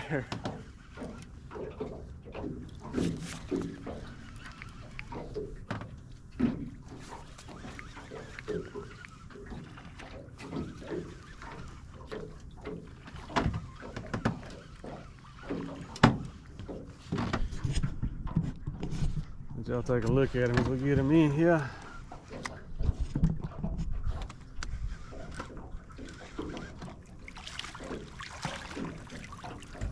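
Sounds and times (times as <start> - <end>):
fishing rod and boat knocks: 5.1 - 7.0, 15.5 - 19.3
wind rumbling on microphone: 22.5 - 25.5.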